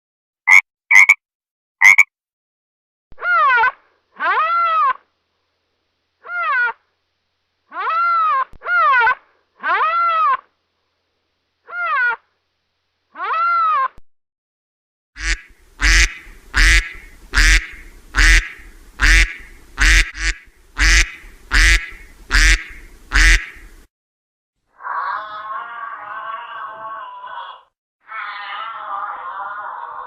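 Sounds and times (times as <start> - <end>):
duck quacking: 0.5 - 1.2, 1.8 - 2.1, 15.2 - 23.7.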